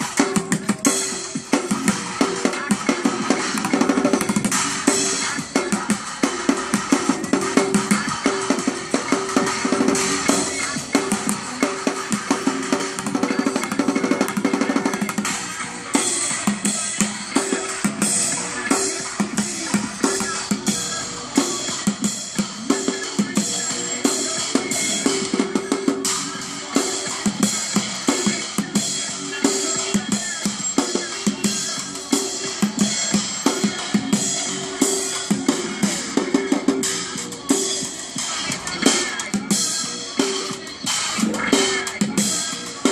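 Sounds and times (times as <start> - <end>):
bucket drumming: 0.0 - 26.1.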